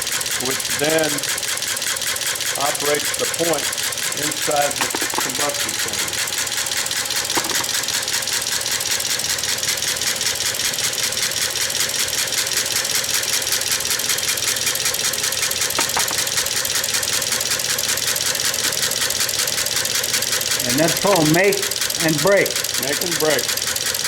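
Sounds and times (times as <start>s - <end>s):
ignition mechanism clattering: 4.2s - 6.3s, 7.2s - 8.0s, 15.7s - 16.6s, 20.7s - 21.6s.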